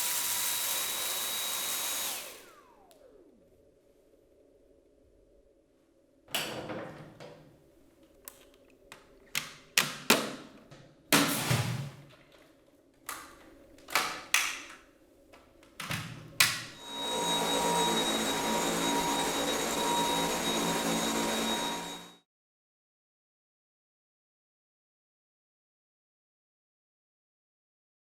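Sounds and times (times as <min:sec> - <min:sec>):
vacuum motor whine: 0:00.0 - 0:04.8, 0:16.8 - 0:22.2.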